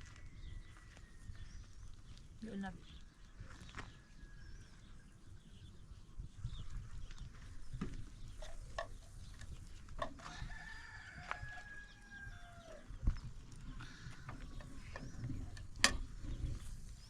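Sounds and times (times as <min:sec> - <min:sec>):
sharp clicks and knocks: 0:07.8 - 0:10.3, 0:14.2 - 0:16.5
rooster crowing: 0:10.2 - 0:12.9.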